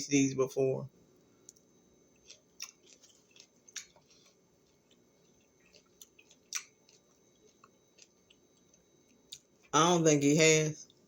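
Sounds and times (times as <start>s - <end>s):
chewing raw vegetable: 1.5s - 9.7s.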